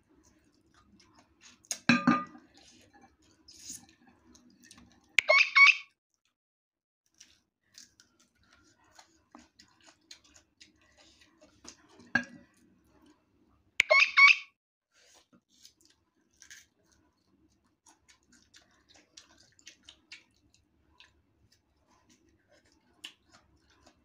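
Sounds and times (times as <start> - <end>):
crunchy chewing: 7.1 - 13.2, 15.0 - 24.0.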